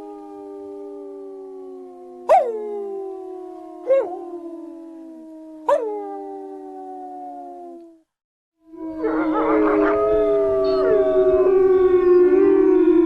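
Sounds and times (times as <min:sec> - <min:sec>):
wolves howling in chorus: 0:01.6 - 0:04.8, 0:08.7 - 0:13.0.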